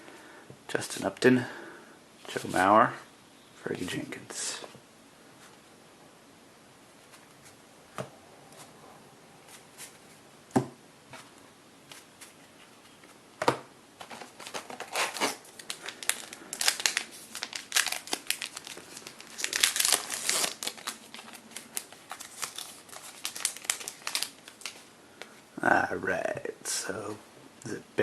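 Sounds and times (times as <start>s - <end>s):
wrapper tearing and crinkling: 14.1s - 24.8s.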